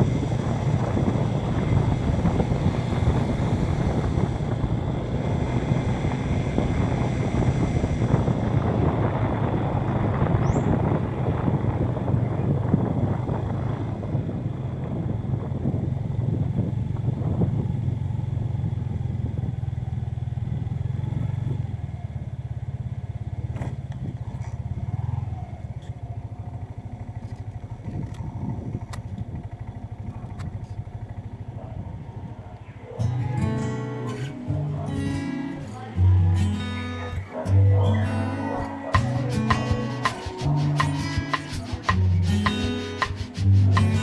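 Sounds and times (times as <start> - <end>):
wind on microphone: 0.0 - 19.8, 27.6 - 35.2
motorcycle engine running: 0.0 - 44.0
acoustic guitar music: 33.0 - 44.0.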